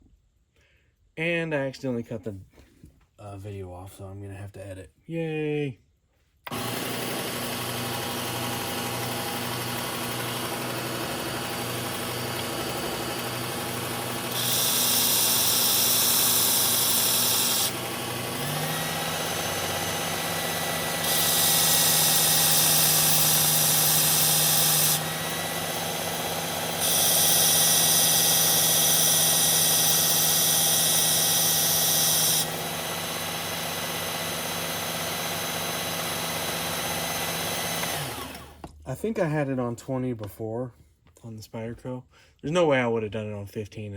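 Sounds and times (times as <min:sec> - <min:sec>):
belt sharpener running: 0:06.4 - 0:38.8.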